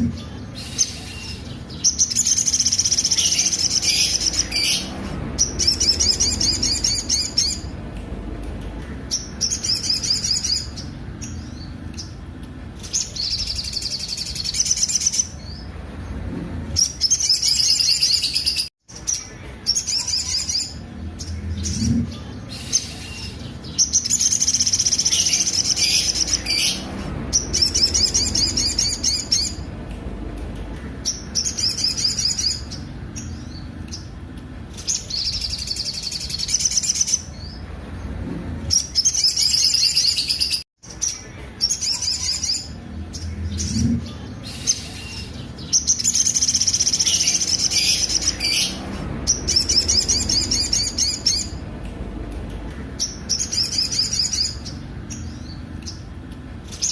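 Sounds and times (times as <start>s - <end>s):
bird singing harsh trills: 0.0s - 12.2s, 12.8s - 16.2s, 16.8s - 29.8s, 30.8s - 37.6s, 38.7s - 56.9s.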